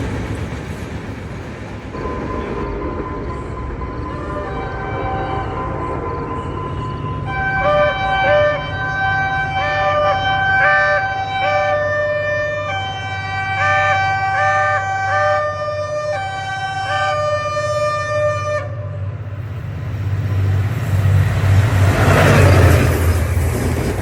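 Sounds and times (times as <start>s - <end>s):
locomotive engine rumble: 0.0s - 24.0s
passing train noise: 0.0s - 24.0s
locomotive air horn chords: 3.8s - 19.3s.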